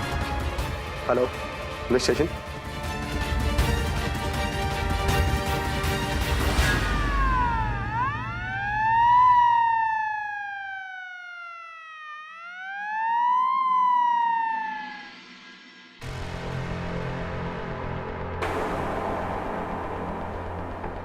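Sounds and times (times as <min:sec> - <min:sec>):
police siren wailing: 0:06.3 - 0:15.4.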